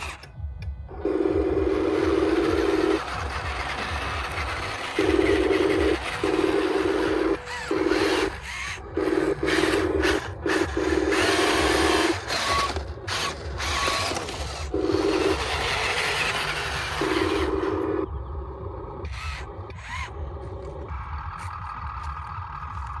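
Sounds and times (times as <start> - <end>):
electric motors whining: 0.0 - 23.0
plastic gears rattling: 1.8 - 17.8.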